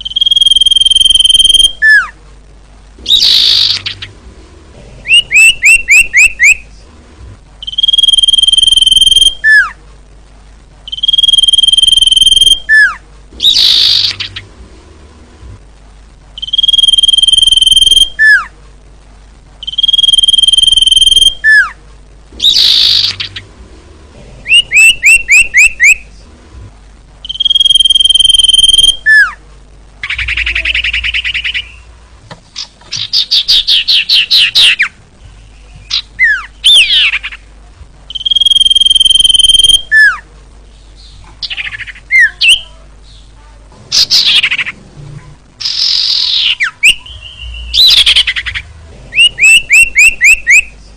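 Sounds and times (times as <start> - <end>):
bird whistling calls: 0.0 - 2.1, 3.0 - 4.1, 5.1 - 6.6, 7.6 - 9.8, 10.9 - 14.4, 16.4 - 18.5, 19.6 - 21.8, 24.5 - 26.0, 27.2 - 29.4, 38.1 - 40.2, 45.6 - 50.7.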